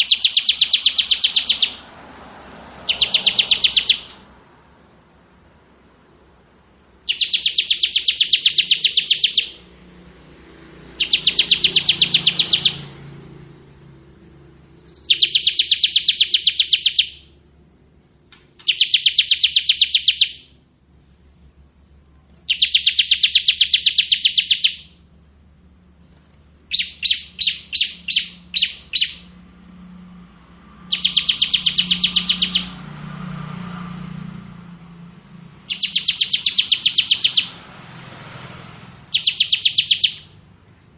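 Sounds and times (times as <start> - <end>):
bird singing trilled phrases: 0.0 - 1.8, 2.9 - 6.1, 7.1 - 9.6, 11.0 - 13.0, 13.8 - 21.5, 22.4 - 25.4, 26.1 - 29.4, 30.9 - 32.8, 35.7 - 37.6, 39.1 - 40.4.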